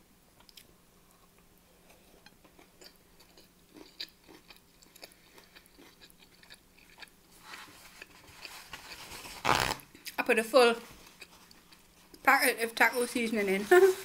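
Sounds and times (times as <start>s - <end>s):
soft chewing mouth clicks: 0.4s - 9.0s.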